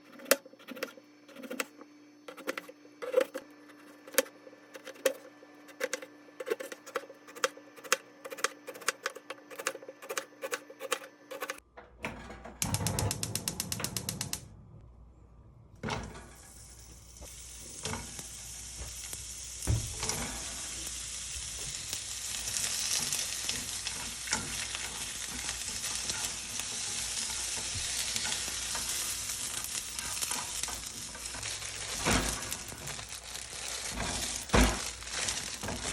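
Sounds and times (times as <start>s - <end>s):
food sizzling in a frying pan: 16.2s - 35.9s.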